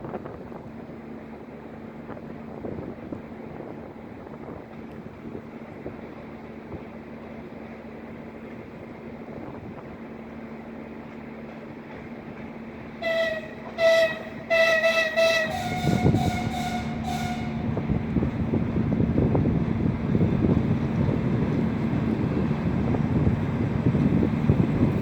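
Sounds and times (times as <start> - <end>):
train rumble: 0.0 - 25.0
wind buffeting microphone: 1.9 - 7.0, 13.4 - 25.0
train horn blasts: 13.0 - 18.0.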